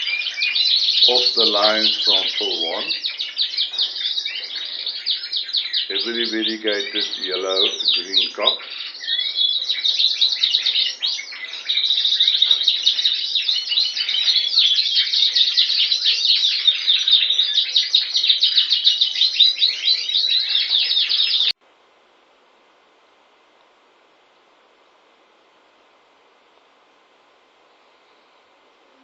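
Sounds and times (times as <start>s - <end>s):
canary singing rapid trills: 0.0s - 21.6s
faint hiss: 21.6s - 29.0s.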